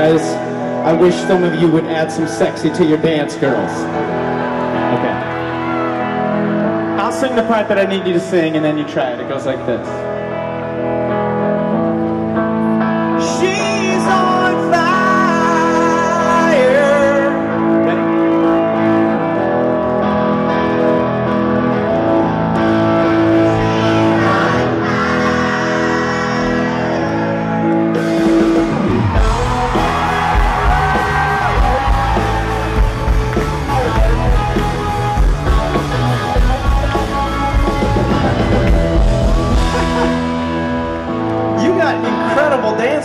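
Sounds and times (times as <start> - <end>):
guitar chords: 1.8 - 8.3, 9.2 - 43.0
bass guitar: 9.9 - 43.0
person singing: 13.2 - 17.7, 23.3 - 27.6
drums: 22.6 - 41.2.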